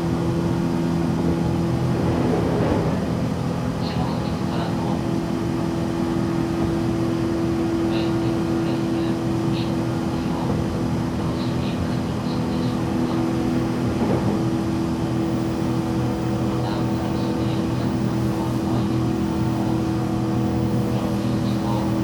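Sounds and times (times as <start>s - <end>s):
wheels rumbling on rail: 0.0s - 22.0s
train motor hum: 7.9s - 22.0s.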